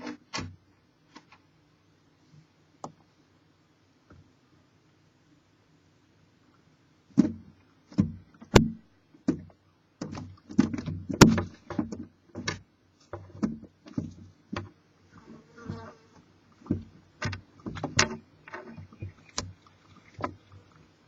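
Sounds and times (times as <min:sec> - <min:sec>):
knocks and scrapes on wood: 0:07.2 - 0:20.4.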